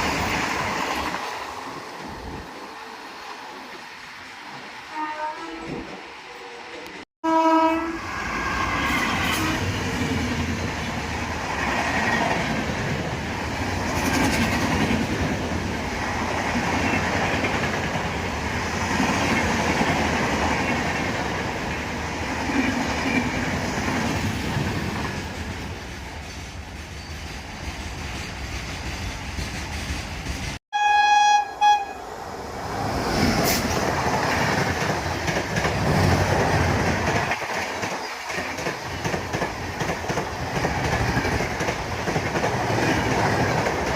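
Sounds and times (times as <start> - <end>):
wheels rushing on rails: 0.0 - 7.0, 8.0 - 30.6, 31.8 - 43.9
train passing at speed: 0.0 - 43.9
loud train horn blast: 4.9 - 9.8, 30.7 - 32.1.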